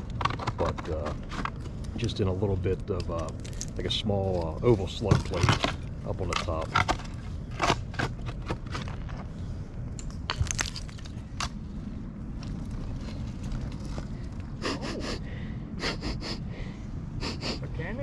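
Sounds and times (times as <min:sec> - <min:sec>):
steady low rumble: 0:00.0 - 0:18.0
dirt and glass crunching: 0:00.2 - 0:09.3, 0:09.9 - 0:11.6.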